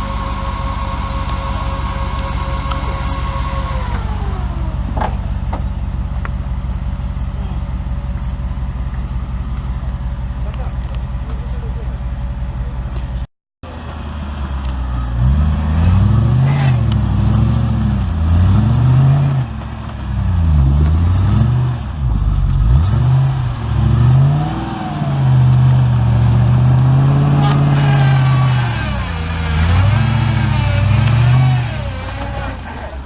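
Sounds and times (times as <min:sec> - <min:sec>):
engine revving: 0:00.0 - 0:11.9, 0:12.6 - 0:33.0.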